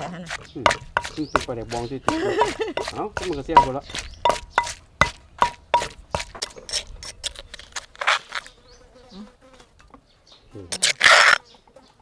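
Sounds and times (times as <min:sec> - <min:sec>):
knife chopping on cutting board: 0:00.3 - 0:06.6.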